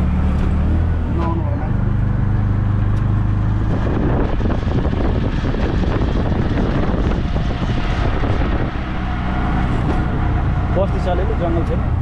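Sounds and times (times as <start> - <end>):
auto rickshaw motor running: 0.0 - 12.0
wind buffeting microphone: 3.1 - 12.0.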